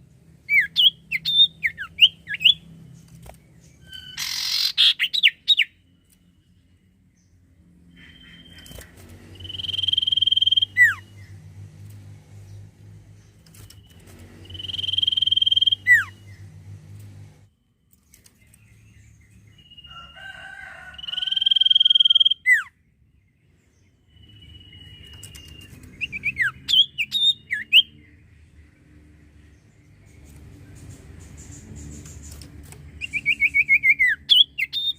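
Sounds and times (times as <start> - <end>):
bird whistling song: 0.4 - 2.6, 3.7 - 5.8, 7.9 - 11.4, 13.5 - 16.4, 21.0 - 22.7, 24.1 - 28.0, 33.0 - 34.9
short sliding bird chirps: 3.9 - 5.7, 13.4 - 16.4.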